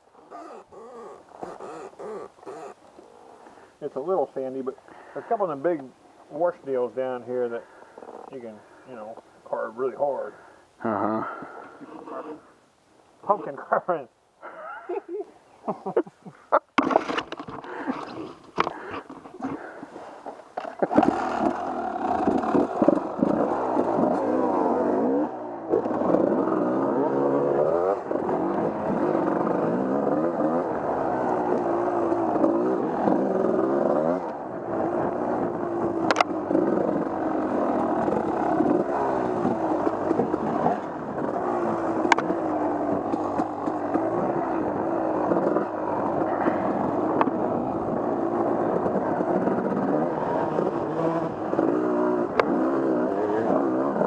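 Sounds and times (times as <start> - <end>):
motorcycle engine revving: 0.0 - 5.9, 20.6 - 54.0.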